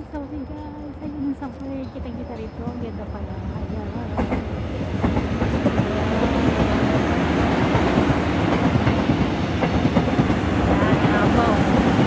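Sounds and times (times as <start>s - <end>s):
train wheels clattering on rails: 0.0s - 12.0s.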